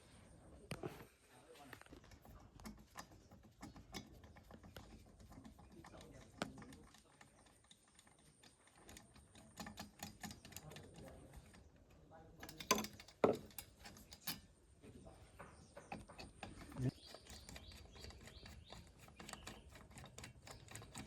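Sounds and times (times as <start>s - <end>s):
small clicks and taps: 1.8s - 11.7s.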